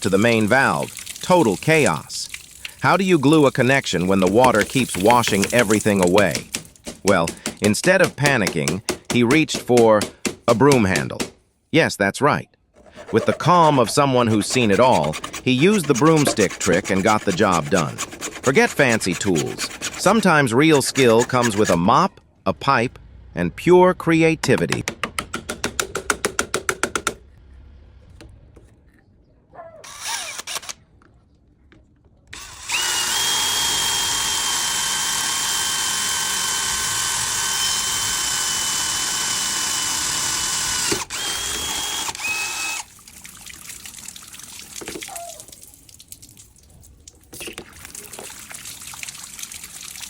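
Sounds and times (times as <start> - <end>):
power tool motor whining: 32.4 - 42.9.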